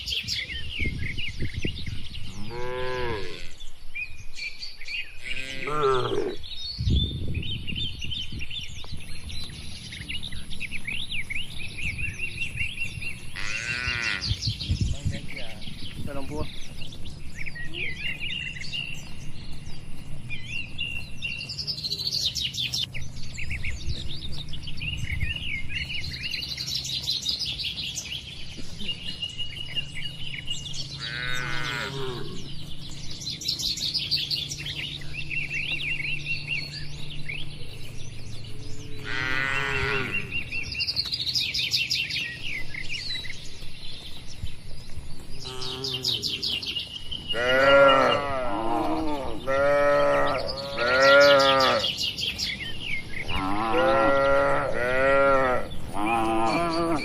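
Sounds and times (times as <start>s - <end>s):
small birds chirping: 0.0s - 57.0s
cattle calling: 13.3s - 14.4s, 31.0s - 32.5s, 39.0s - 40.4s, 45.4s - 46.5s, 47.3s - 52.0s, 53.3s - 57.0s.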